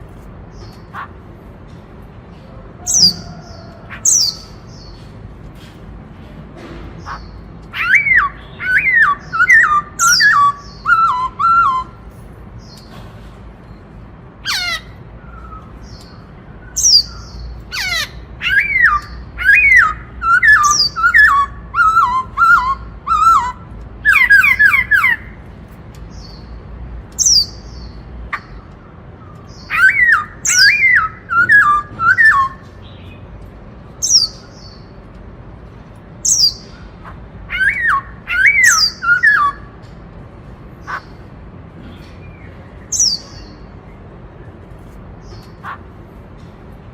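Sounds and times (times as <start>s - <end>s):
sharp high bird calls: 7.0s - 12.0s, 14.4s - 25.4s, 27.2s - 33.2s, 36.2s - 39.8s, 40.8s - 41.2s
bird singing whistled notes: 7.8s - 12.0s, 18.4s - 25.2s, 29.6s - 33.2s, 37.5s - 39.7s.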